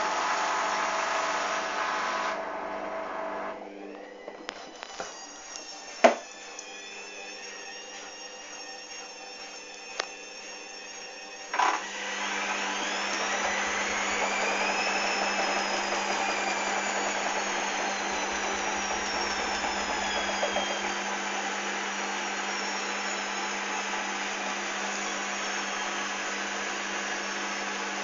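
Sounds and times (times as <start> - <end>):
washing machine spinning: 0.0 - 28.0
washing machine knock: 6.0 - 6.2, 18.7 - 20.9.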